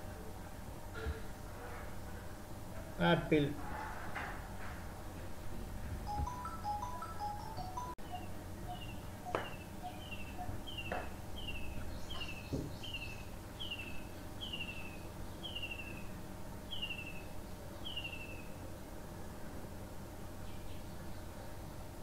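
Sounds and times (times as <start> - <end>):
low steady hum: 0.0 - 22.0
bird chirping: 6.3 - 16.1, 16.7 - 18.6.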